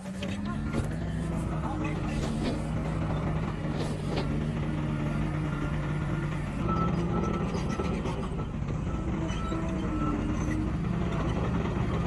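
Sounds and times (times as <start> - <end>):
heavy diesel machine running: 0.0 - 12.0
reversing alarm beeps: 6.6 - 10.7.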